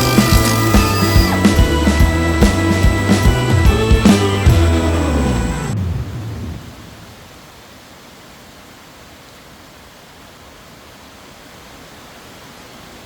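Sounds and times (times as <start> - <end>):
steady background hiss: 4.2 - 13.0.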